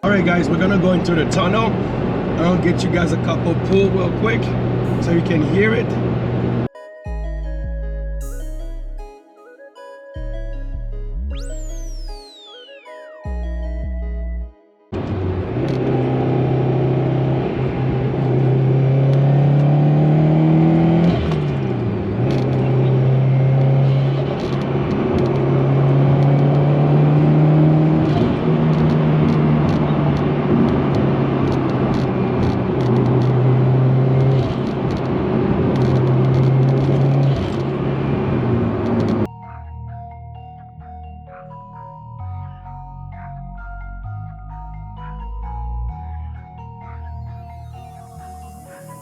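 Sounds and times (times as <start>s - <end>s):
car engine accelerating through gears: 15.0s - 39.3s.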